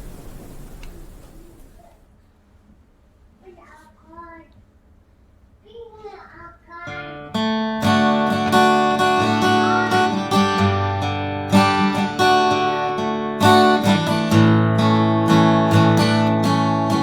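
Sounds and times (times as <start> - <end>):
acoustic guitar strumming chords: 6.8 - 17.0.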